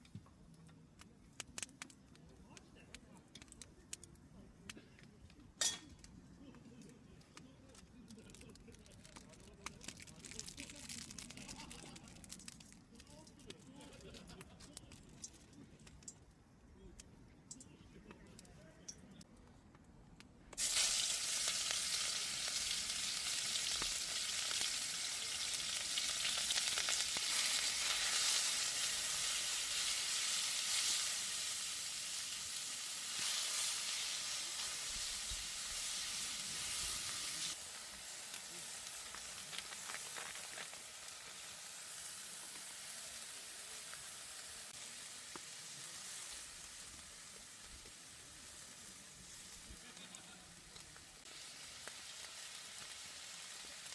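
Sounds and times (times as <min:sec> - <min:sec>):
food sizzling in hot wok: 0:20.6 - 0:53.9.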